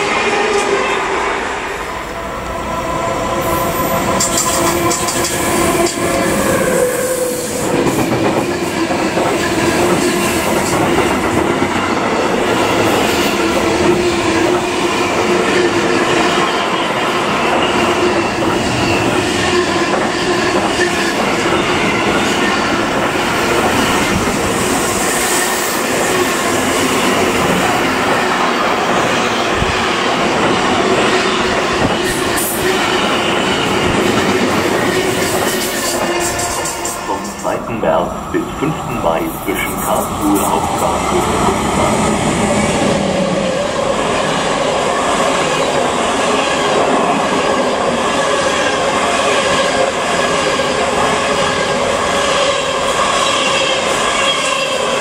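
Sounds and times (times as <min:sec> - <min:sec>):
train wheels rumbling: 0:01.9 - 0:48.7
clickety-clack over rail joints: 0:04.2 - 0:06.2, 0:07.7 - 0:16.5, 0:18.6 - 0:24.4.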